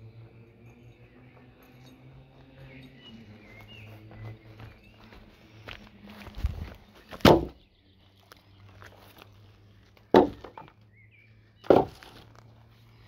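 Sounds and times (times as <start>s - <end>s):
chopping strikes on wood: 7.2s - 7.6s, 10.1s - 10.7s, 11.6s - 12.0s.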